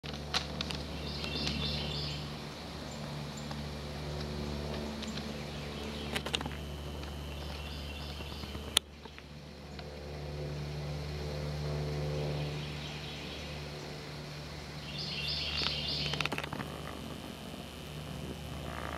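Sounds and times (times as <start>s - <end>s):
low drone: 0.0s - 18.9s
songbird chirping: 0.9s - 2.3s, 5.0s - 9.8s, 14.7s - 16.5s.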